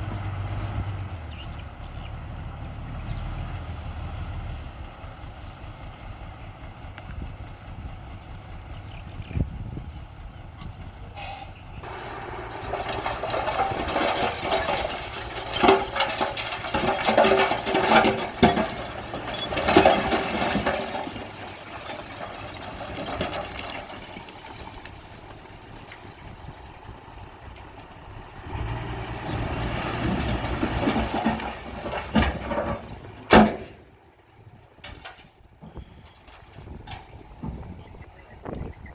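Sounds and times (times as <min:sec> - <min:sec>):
diesel earthmoving machinery: 0:00.0 - 0:38.9
rock clattering and scraping: 0:11.8 - 0:26.4, 0:29.2 - 0:33.8.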